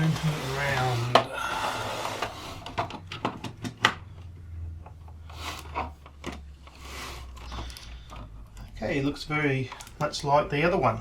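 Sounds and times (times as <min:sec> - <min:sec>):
plastic scraping: 0:00.0 - 0:10.0
plastic clicks and knocks: 0:02.2 - 0:06.7.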